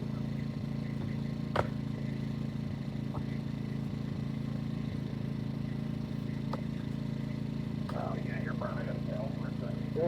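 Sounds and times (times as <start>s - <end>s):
generator engine running: 0.0s - 10.0s.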